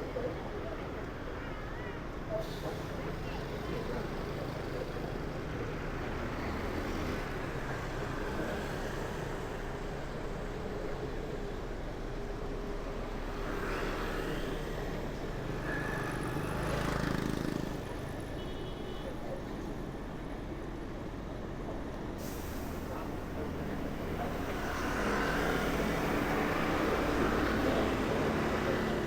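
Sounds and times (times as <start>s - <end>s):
passing vehicle engines: 3.4s - 18.4s, 21.2s - 29.0s.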